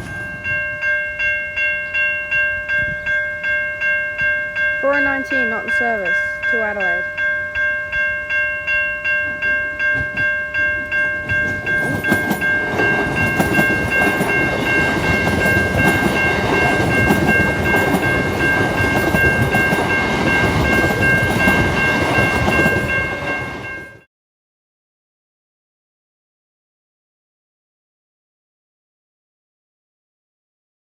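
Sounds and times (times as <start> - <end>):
level crossing bells ringing: 0.0 - 24.1
train wheels clicking over rail joints: 9.9 - 23.9.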